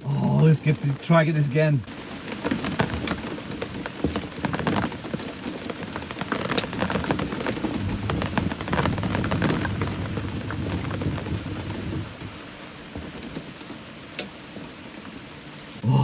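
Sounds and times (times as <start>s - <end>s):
rain pattering on boat and water: 0.0s - 16.0s
low rumble: 7.6s - 12.2s.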